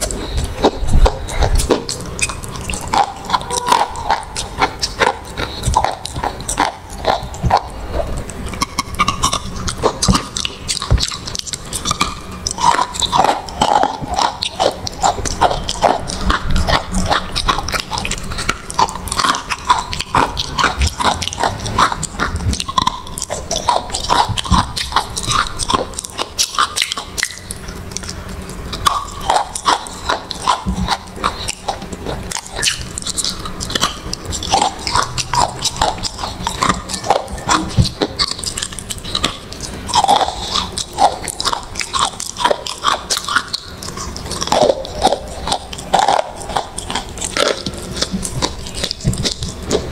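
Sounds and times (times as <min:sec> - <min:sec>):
crunchy biting and chewing: 0:00.0 - 0:49.9.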